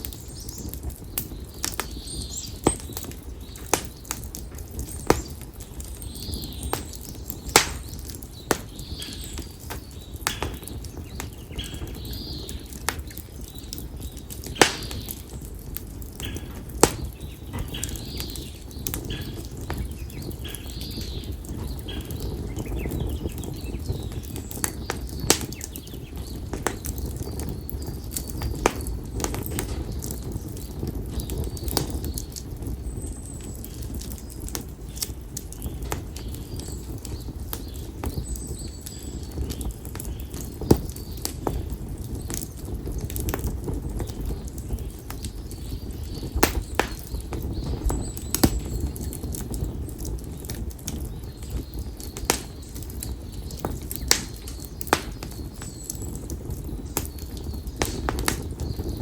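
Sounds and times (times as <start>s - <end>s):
firewood crackling and popping: 0.0s - 59.0s
rush of flames: 0.0s - 59.0s
bird chirping: 0.1s - 15.5s, 16.2s - 43.0s.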